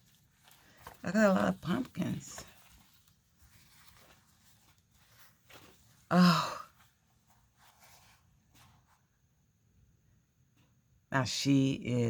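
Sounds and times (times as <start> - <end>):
paper packaging rustling: 0.0 - 9.1
woman sighing oh: 6.1 - 6.9.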